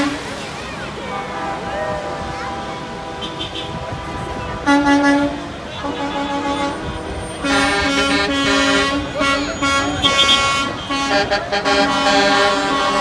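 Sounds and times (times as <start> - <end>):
truck horns blasting: 0.0 - 13.0.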